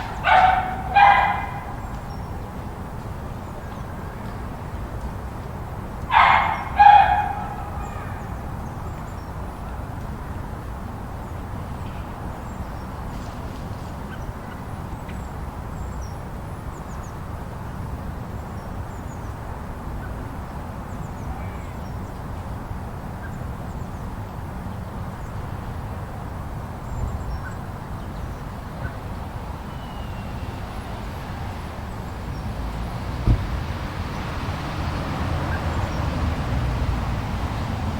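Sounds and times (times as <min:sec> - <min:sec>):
low rumbling rush: 0:29.0 - 0:37.9.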